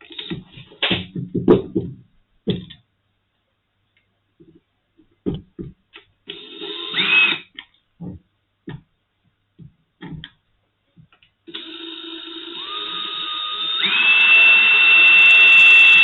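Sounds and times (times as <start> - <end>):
handling knocks and clicks: 0.1 - 2.8, 4.4 - 6.1, 9.6 - 10.4
small electric drill whining: 6.3 - 7.5, 11.5 - 16.0.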